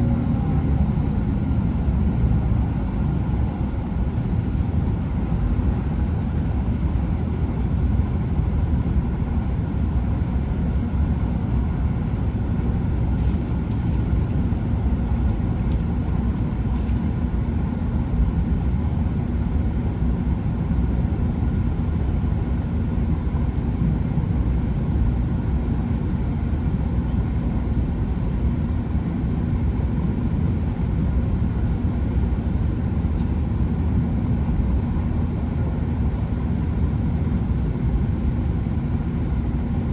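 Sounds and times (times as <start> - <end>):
train wheels rumbling on rail: 0.0 - 17.5
diesel engines: 0.0 - 17.9.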